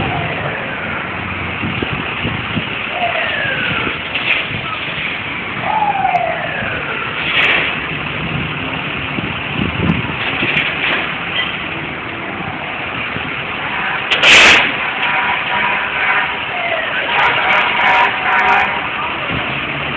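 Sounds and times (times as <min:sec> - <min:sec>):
city street traffic: 0:00.0 - 0:19.9
loud short burst of noise: 0:14.0 - 0:15.2.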